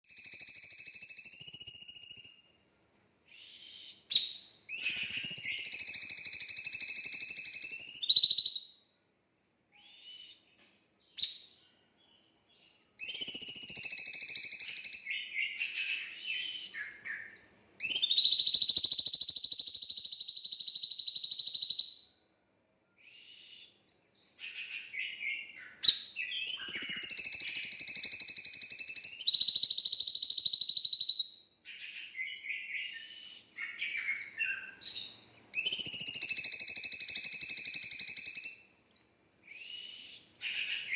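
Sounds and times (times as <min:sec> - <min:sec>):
songbird trilling: 0:04.7 - 0:08.6, 0:24.2 - 0:38.7, 0:40.1 - 0:40.9.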